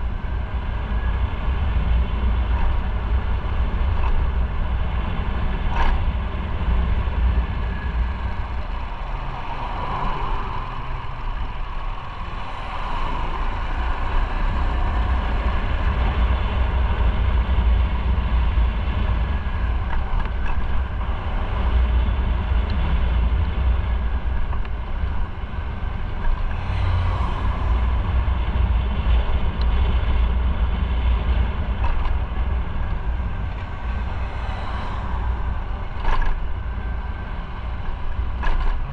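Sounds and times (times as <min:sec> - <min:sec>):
wind rumble on microphone: 0:00.0 - 0:38.9.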